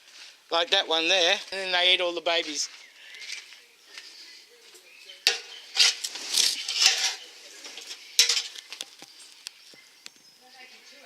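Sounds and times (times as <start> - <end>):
objects rustling and clattering: 2.7 - 9.9.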